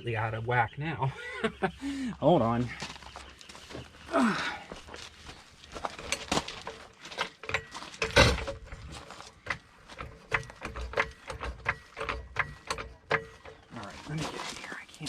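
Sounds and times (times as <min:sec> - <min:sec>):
metal tools clinking and knocking: 0:05.8 - 0:14.5.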